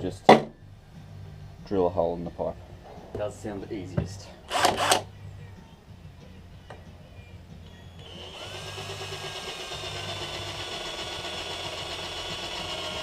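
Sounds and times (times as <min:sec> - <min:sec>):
electric drill whining: 0:04.5 - 0:05.1, 0:07.7 - 0:13.0.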